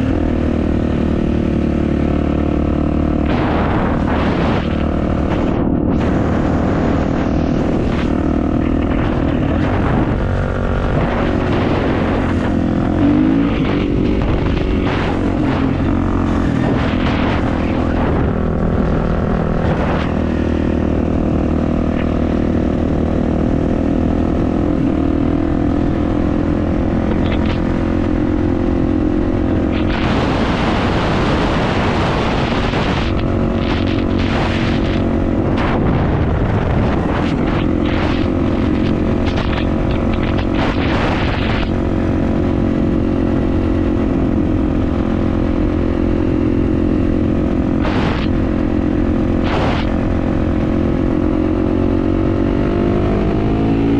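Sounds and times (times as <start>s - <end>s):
motocross bike engine running: 0.0s - 53.9s
loud rushing noise: 3.1s - 22.2s, 29.5s - 43.0s, 47.6s - 50.6s.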